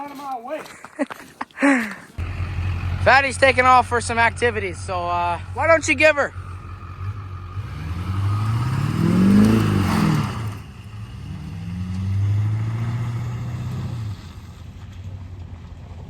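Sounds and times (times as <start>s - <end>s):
engine revving: 2.2s - 14.9s.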